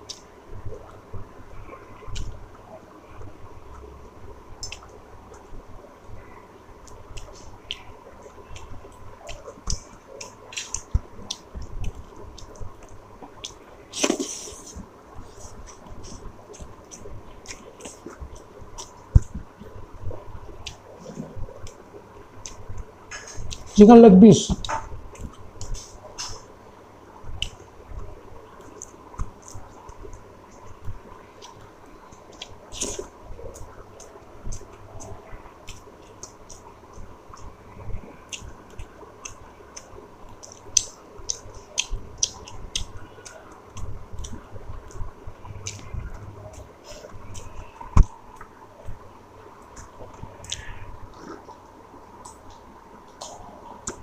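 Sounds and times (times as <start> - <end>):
wet chewing of food: 6.8 - 21.8, 27.4 - 54.0.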